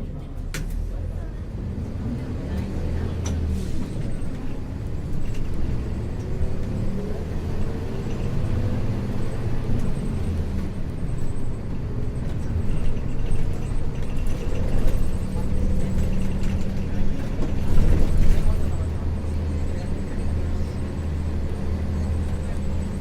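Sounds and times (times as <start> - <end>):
bus engine low drone: 0.0 - 23.0
road noise: 0.0 - 23.0.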